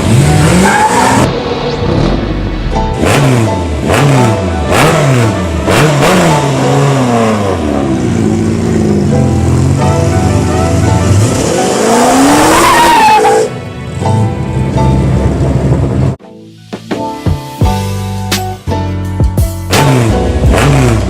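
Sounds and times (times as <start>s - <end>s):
car engine revving: 0.0s - 13.5s, 19.8s - 21.0s.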